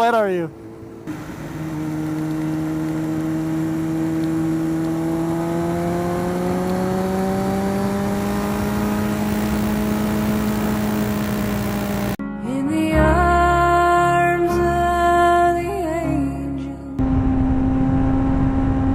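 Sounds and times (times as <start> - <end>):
motorcycle engine cruising: 0.0 - 12.2, 17.0 - 18.9.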